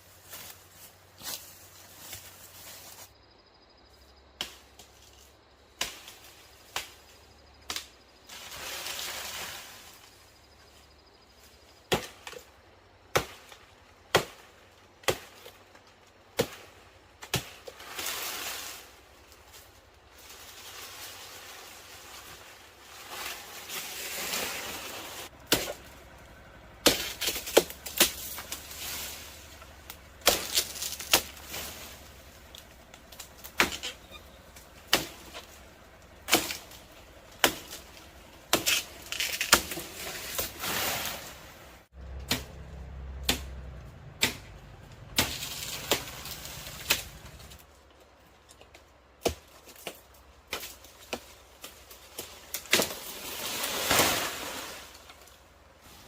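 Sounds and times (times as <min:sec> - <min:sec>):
rustling: 0:17.5 - 0:41.9, 0:43.8 - 0:48.9.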